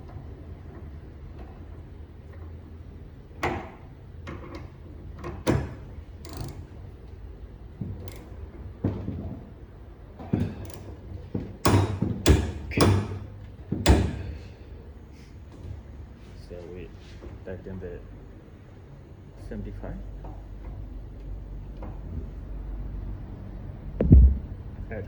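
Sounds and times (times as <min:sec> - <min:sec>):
loud knocks: 0:24.0 - 0:24.9.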